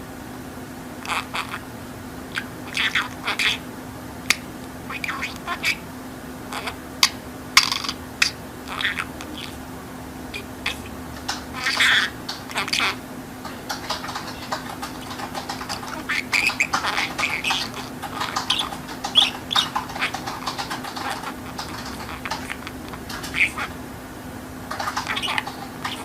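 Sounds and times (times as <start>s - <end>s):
budgerigar chattering and warbling: 1.0s - 1.7s, 2.3s - 3.7s, 4.3s - 5.9s, 6.5s - 9.7s, 10.3s - 23.9s, 24.6s - 26.0s.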